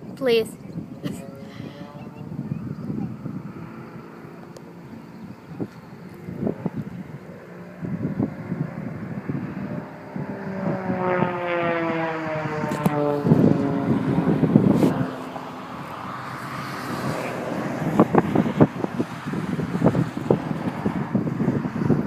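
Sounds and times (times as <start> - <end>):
airplane engine drone: 0.0 - 22.0
wind rumble on microphone: 0.0 - 22.0.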